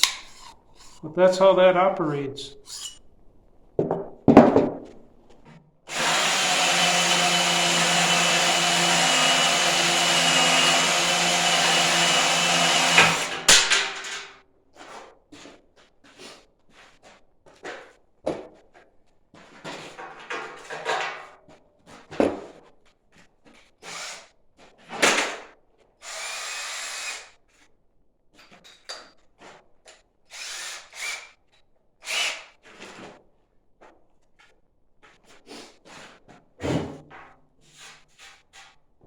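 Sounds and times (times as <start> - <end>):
tool scrapes and knocks: 0.0 - 1.1, 2.6 - 3.0.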